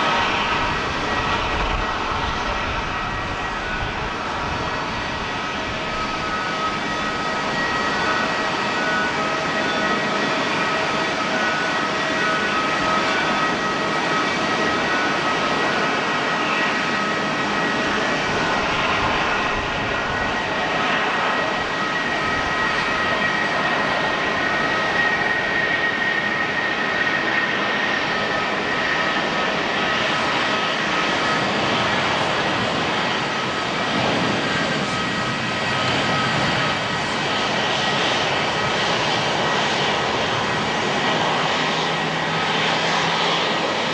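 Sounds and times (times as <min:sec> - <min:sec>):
jet engines roaring: 0:00.0 - 0:43.9.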